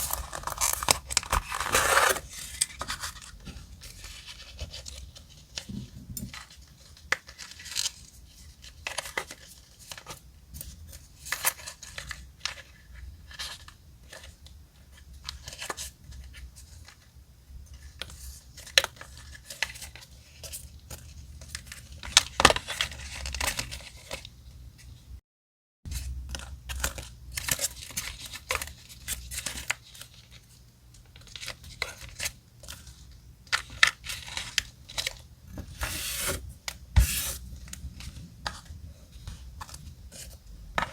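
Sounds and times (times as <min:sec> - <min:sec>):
paper rustling and tearing: 0:00.0 - 0:03.3, 0:35.7 - 0:37.5.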